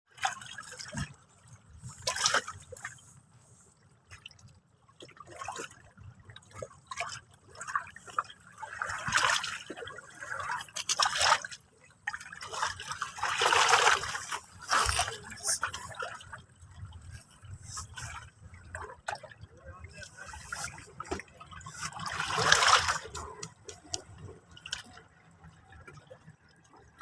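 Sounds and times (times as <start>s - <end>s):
waves lapping and splashing: 0.1s - 27.0s.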